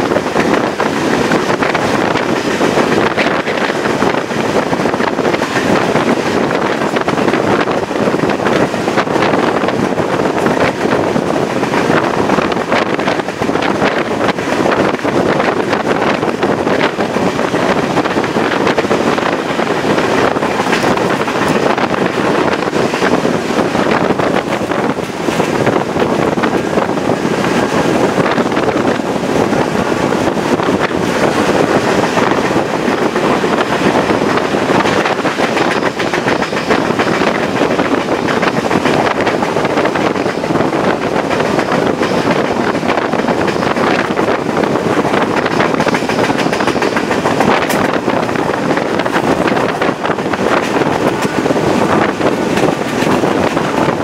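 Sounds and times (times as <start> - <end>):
train running noise: 0.0 - 54.0
wind buffeting microphone: 0.0 - 54.0.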